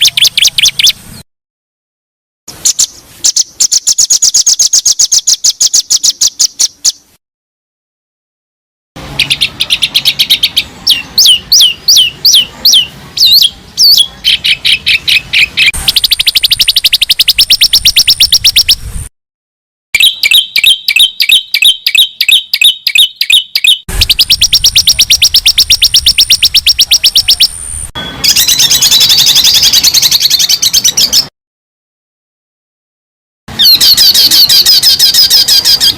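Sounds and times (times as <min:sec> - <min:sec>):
bird trills and chattering: 0:00.0 - 0:01.0, 0:02.6 - 0:07.0, 0:09.2 - 0:18.6, 0:20.0 - 0:31.3, 0:33.6 - 0:35.9
songbird calls: 0:00.0 - 0:01.0, 0:02.6 - 0:07.0, 0:09.2 - 0:18.7, 0:20.0 - 0:31.3, 0:33.6 - 0:35.9
fast downslurred whistles: 0:09.2 - 0:18.8, 0:20.0 - 0:31.3, 0:33.6 - 0:35.9.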